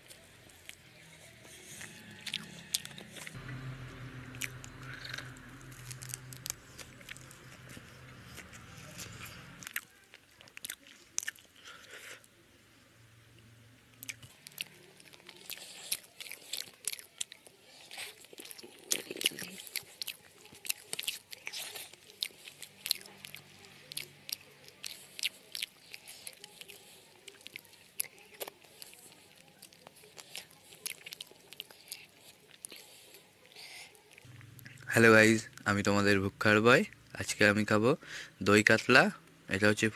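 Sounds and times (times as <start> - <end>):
person crunching crisp food: 0.0 - 3.4, 4.2 - 12.2, 14.0 - 34.3.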